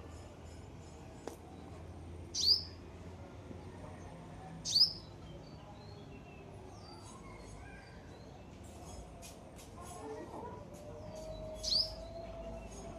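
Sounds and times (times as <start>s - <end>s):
small bird chirping: 2.3s - 2.8s, 4.6s - 6.2s, 11.5s - 12.8s.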